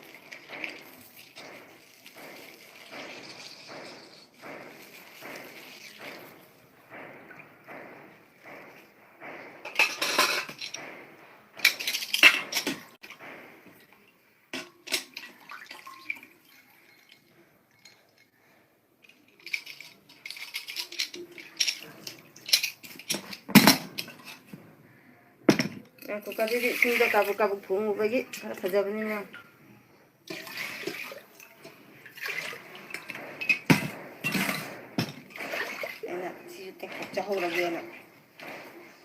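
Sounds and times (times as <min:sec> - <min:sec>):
dishes and cutlery clinking: 0:00.0 - 0:13.2, 0:19.0 - 0:24.6, 0:30.3 - 0:39.0.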